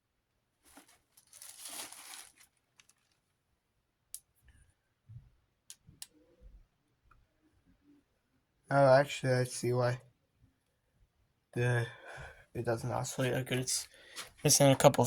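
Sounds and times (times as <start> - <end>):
rustling crinkling handling noise: 0.6 - 3.3.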